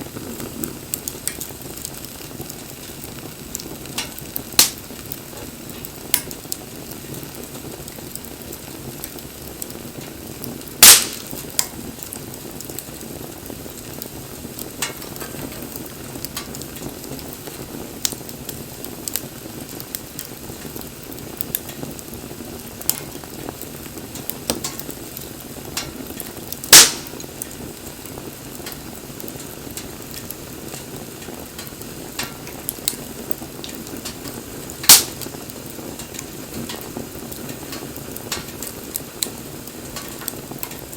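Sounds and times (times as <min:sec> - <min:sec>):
wood fire crackling: 0:00.0 - 0:40.9
loud sharp snaps: 0:04.6 - 0:04.8, 0:10.8 - 0:11.7, 0:26.7 - 0:27.2, 0:34.9 - 0:35.3.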